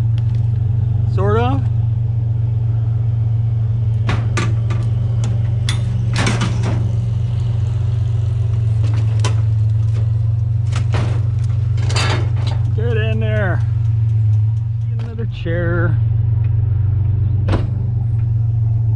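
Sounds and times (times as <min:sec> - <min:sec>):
vehicle engine idling: 0:00.0 - 0:18.9
metal clanks and knocks: 0:04.0 - 0:07.3, 0:08.7 - 0:13.7.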